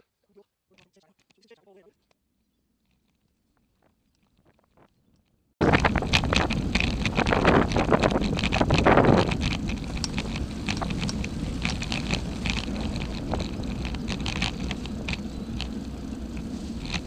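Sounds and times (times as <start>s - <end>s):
wind on microphone: 5.6s - 17.0s.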